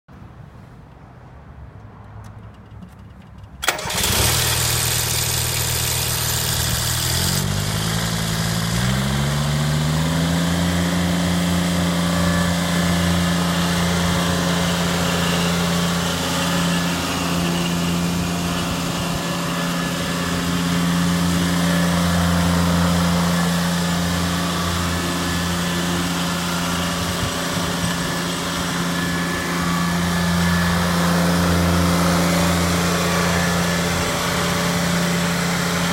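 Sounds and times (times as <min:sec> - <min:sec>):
diesel engine running: 0:02.6 - 0:35.9
starter motor cranking: 0:03.6 - 0:09.5.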